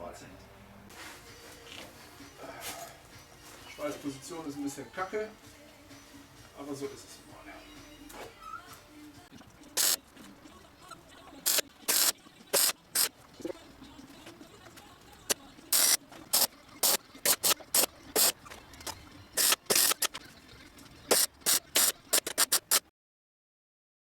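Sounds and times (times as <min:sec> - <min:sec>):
welding arc crackling: 0:09.8 - 0:10.1, 0:11.4 - 0:13.2, 0:15.3 - 0:18.4, 0:19.4 - 0:20.2, 0:21.1 - 0:22.8.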